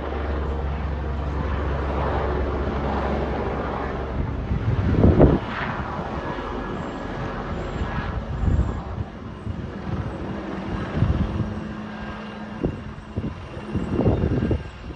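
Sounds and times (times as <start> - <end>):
helicopter engine and rotors droning: 0.0 - 14.9.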